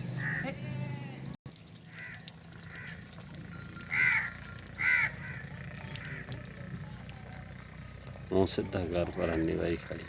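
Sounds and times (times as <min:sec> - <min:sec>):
crows cawing: 0:00.2 - 0:00.6, 0:01.9 - 0:03.2, 0:03.9 - 0:06.5.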